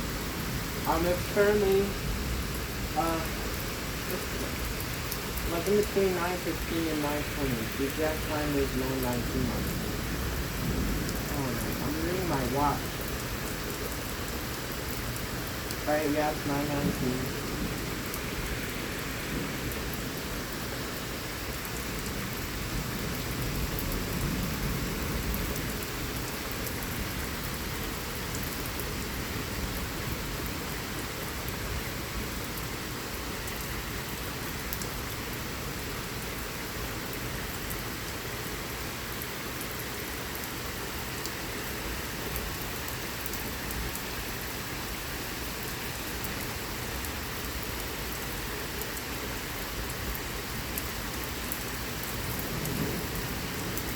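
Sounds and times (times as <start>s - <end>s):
heavy rain pattering: 0.0s - 53.9s
low rumble of thunder: 0.1s - 32.5s, 52.0s - 53.9s.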